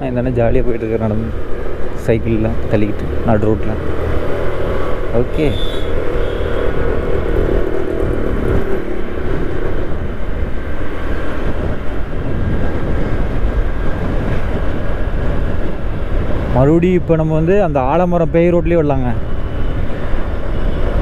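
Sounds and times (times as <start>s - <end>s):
wind buffeting microphone: 0.0s - 21.0s
motorcycle engine running: 1.3s - 10.9s.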